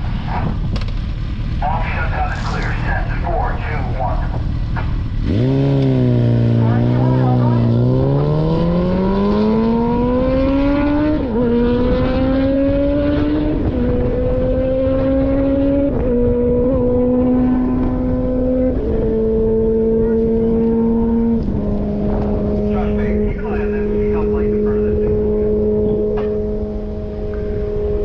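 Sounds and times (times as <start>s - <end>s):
wind rushing: 0.0s - 17.4s
motorcycle engine accelerating: 0.0s - 28.0s.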